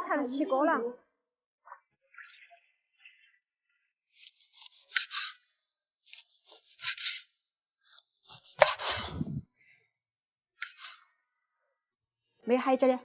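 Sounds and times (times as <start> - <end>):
utensil scraping or chopping: 4.1 - 9.4, 10.6 - 11.1.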